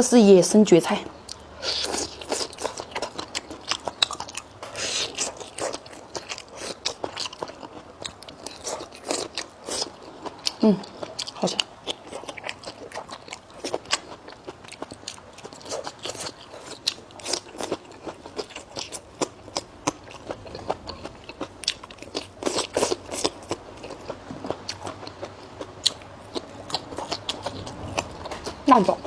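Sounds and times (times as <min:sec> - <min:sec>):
chewing with crisp crunches: 0:01.2 - 0:29.0.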